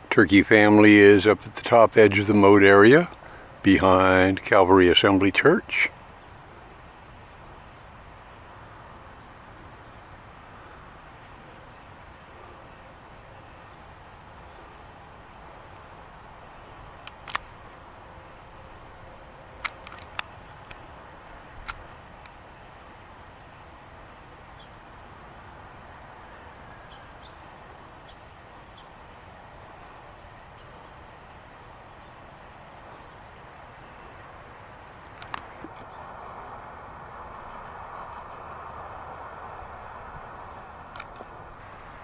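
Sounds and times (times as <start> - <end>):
distant hum: 0.0 - 5.9, 32.9 - 42.0
sharp clicks: 17.0 - 17.5, 19.6 - 20.8, 34.9 - 35.7.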